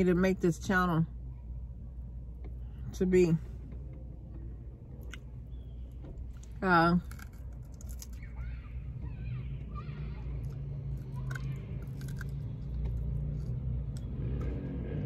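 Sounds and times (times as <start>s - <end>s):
traffic rumble: 0.0s - 15.0s
chewing and crunching food: 5.0s - 5.6s, 6.2s - 8.6s, 9.9s - 15.0s.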